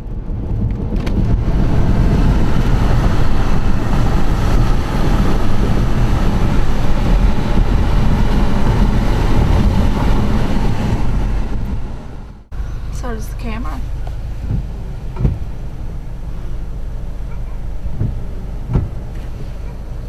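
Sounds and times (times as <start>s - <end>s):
wind buffeting microphone: 0.0s - 13.0s, 13.8s - 20.0s
vehicle rumble: 0.0s - 20.0s.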